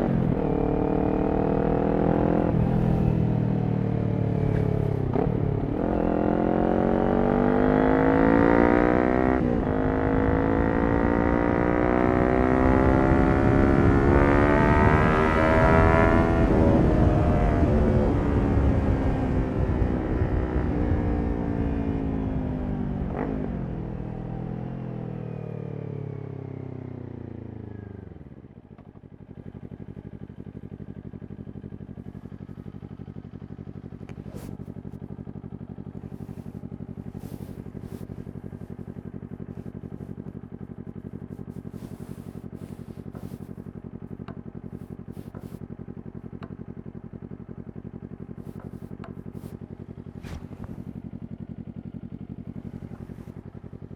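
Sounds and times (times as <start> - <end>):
motorcycle engine slowing and idling: 0.0 - 53.9.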